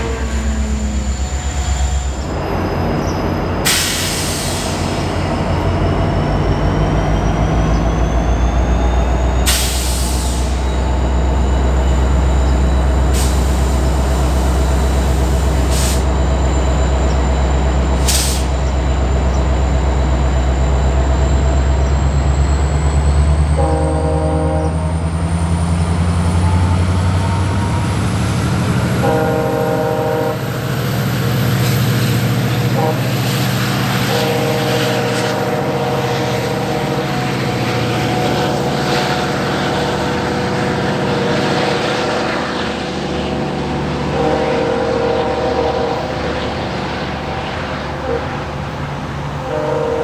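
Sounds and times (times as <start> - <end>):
locomotive engine running: 0.0 - 50.0
locomotive horn: 23.4 - 25.0, 28.6 - 30.7, 32.5 - 50.0.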